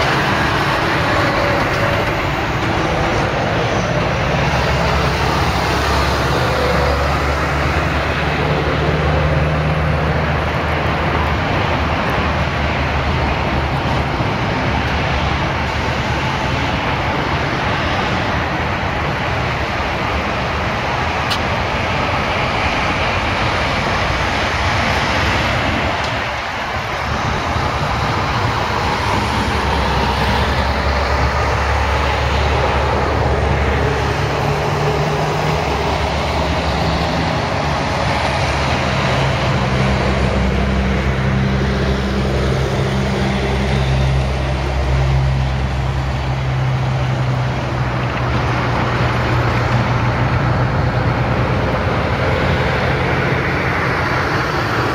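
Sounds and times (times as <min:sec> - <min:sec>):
low engine drone: 0:00.0 - 0:54.9
tyres hissing on road: 0:00.0 - 0:54.9.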